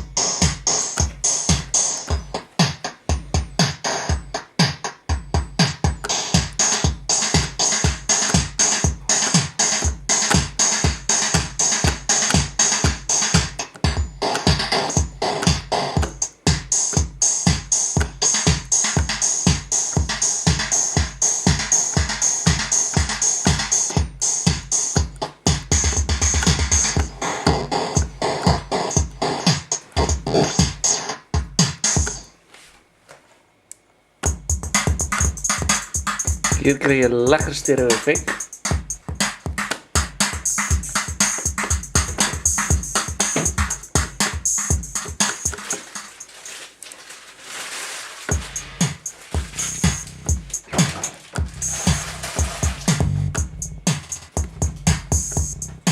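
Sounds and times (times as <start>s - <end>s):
synth and drum machine loop: 0.0s - 32.3s, 34.2s - 46.6s, 48.3s - 55.9s
fast low buzzing roll: 51.4s - 55.9s.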